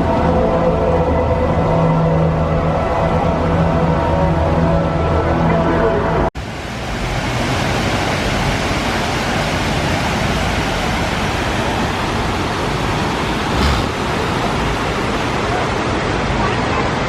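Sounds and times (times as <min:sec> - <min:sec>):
waterfall rushing: 0:06.4 - 0:17.0.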